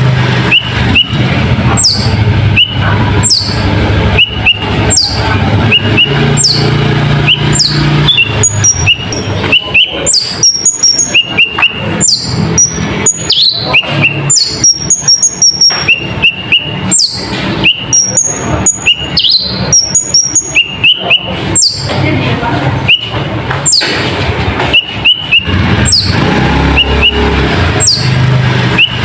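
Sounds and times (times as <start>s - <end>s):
sunbird singing high chirps: 0.5s - 21.9s, 24.7s - 28.2s.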